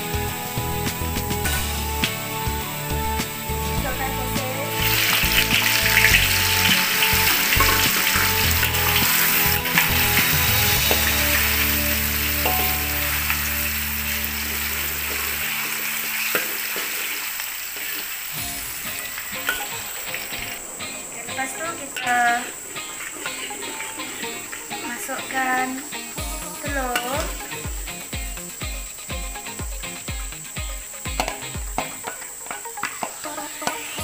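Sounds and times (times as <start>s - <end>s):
background music: 0.0s - 17.2s, 18.3s - 34.0s
food sizzling in hot oil: 0.0s - 34.0s
metal spatula stirring: 5.0s - 11.3s.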